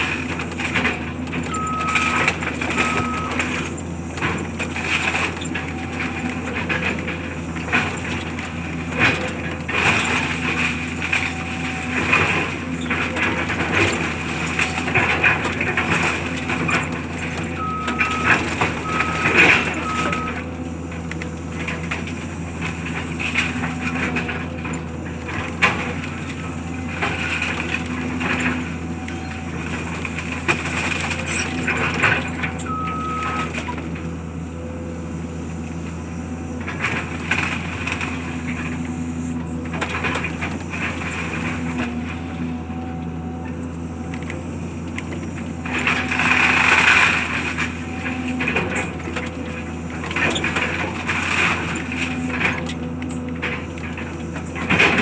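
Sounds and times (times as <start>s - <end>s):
demolition machinery running: 0.0s - 55.0s
reversing alarm beeps: 1.4s - 3.8s, 17.5s - 20.4s, 32.4s - 33.8s.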